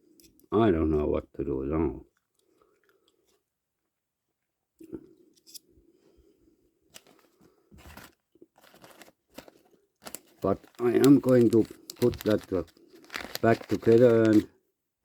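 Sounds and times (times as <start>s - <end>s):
small parts clicking and rustling: 7.9s - 14.5s.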